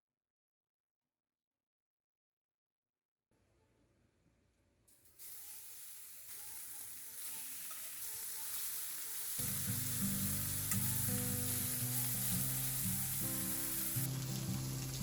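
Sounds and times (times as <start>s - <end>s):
food sizzling in a pan: 4.9s - 15.0s
background music: 5.4s - 15.0s.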